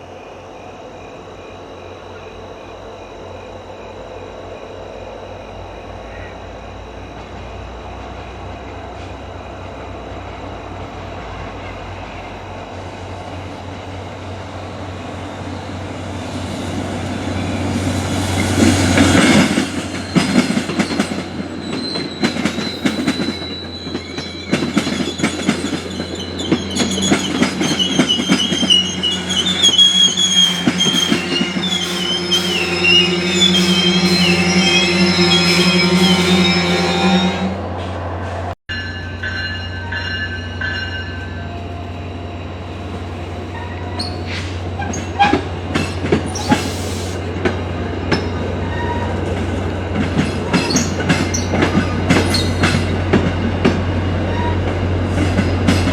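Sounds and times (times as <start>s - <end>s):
diesel locomotive passing: 0.0s - 55.9s
train wheels clicking over rail joints: 16.7s - 32.6s, 42.7s - 55.9s
wheels squealing: 16.8s - 55.9s.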